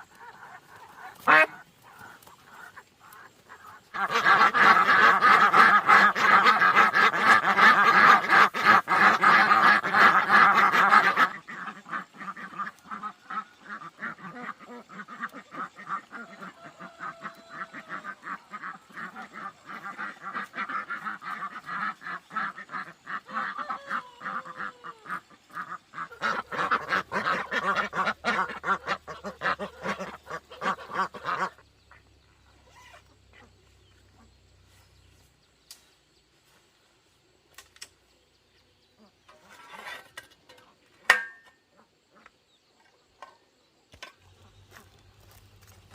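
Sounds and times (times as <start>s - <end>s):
ducks quacking: 0.0s - 35.1s.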